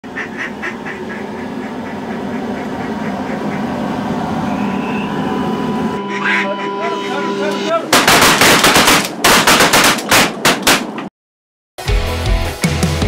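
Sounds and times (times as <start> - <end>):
duck quacks: 0.0 - 3.8, 6.1 - 7.2
steady low rumble: 0.0 - 8.0.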